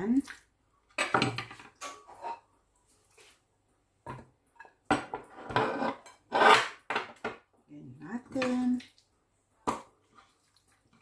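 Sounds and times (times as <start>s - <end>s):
kitchen clatter of dishes: 0.9s - 2.5s, 4.0s - 7.5s.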